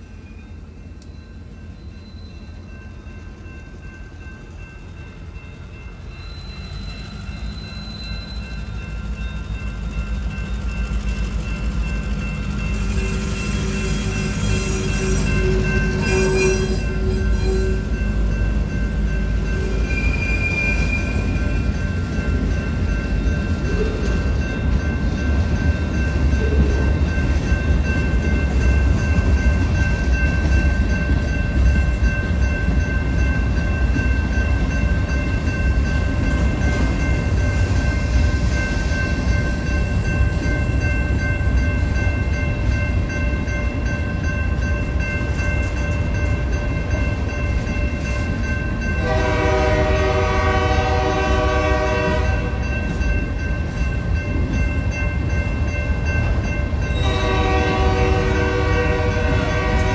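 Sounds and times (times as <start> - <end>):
steel wheels rumbling on rail: 0.0 - 59.9
high wheel squeal: 6.1 - 9.8, 12.8 - 17.9, 19.6 - 21.6
train horn blast: 49.0 - 52.6, 57.0 - 59.9.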